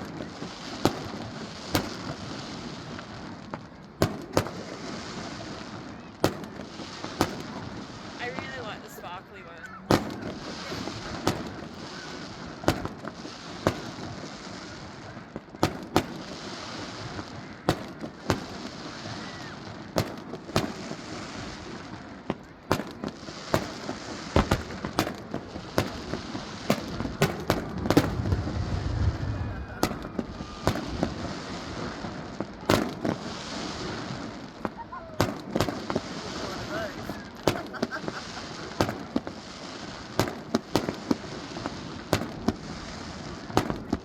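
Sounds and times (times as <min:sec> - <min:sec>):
fireworks bangs: 0:00.0 - 0:44.0
steady hiss: 0:22.8 - 0:44.0.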